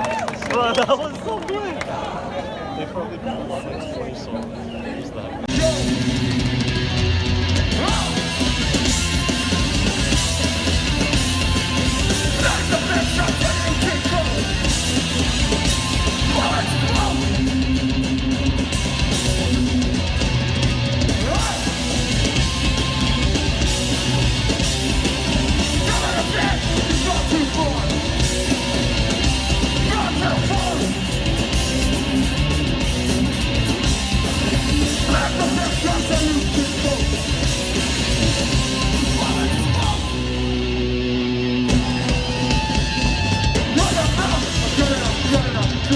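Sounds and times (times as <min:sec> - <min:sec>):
drums: 0:05.4 - 0:45.9
distorted electric guitar: 0:05.5 - 0:45.9
person yelling vocals: 0:21.2 - 0:21.8, 0:29.8 - 0:31.0.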